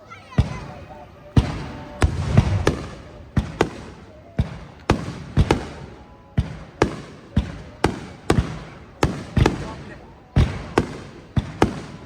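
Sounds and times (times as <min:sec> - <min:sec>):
firework shells bursting: 0:01.4 - 0:12.0.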